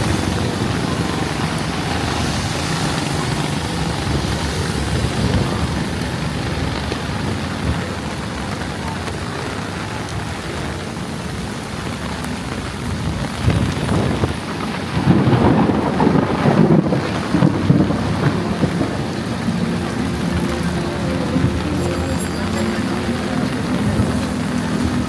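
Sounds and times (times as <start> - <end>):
heavy rain pouring: 0.0 - 25.0
low engine rumble: 13.3 - 25.0.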